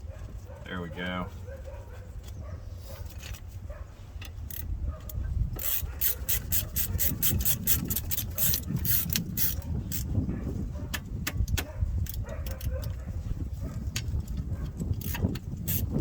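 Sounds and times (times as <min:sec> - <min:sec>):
hand tools scraping metal: 0:05.6 - 0:10.1.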